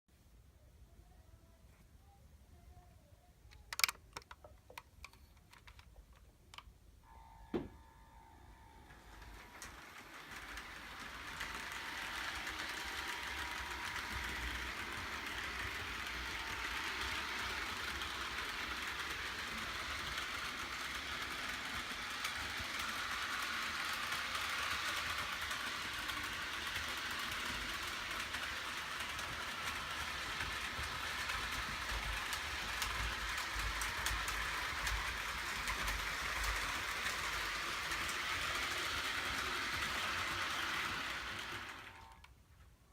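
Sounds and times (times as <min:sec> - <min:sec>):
model train whirring on track: 0:07.1 - 0:42.3.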